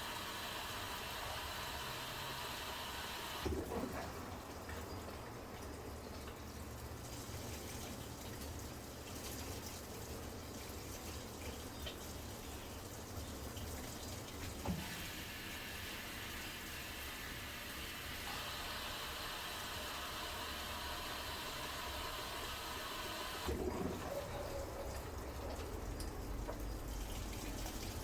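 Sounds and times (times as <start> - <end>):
water rushing into washing machine: 0.0 - 28.0.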